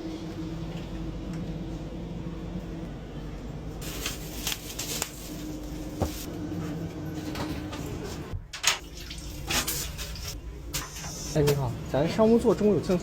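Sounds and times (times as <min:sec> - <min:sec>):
train carriage hum: 0:00.0 - 0:08.5.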